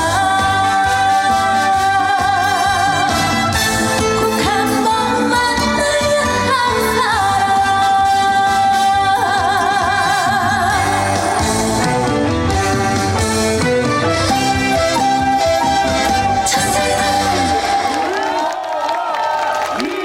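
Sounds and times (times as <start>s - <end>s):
woman singing with vibrato: 0.0s - 12.1s, 16.2s - 18.4s
backing band: 0.0s - 18.6s.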